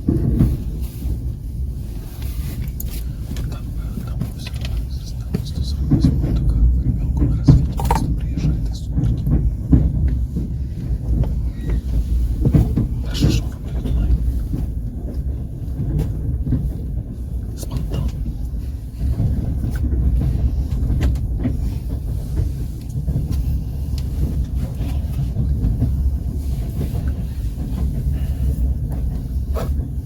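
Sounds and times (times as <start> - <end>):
train wheels rumbling on rail: 0.0 - 30.0
sharp clicks and knocks: 2.7 - 15.2.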